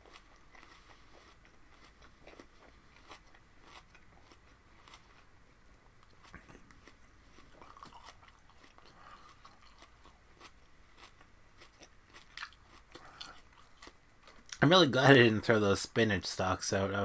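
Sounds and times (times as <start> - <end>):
chewing raw spinach stalks: 0.0 - 14.6.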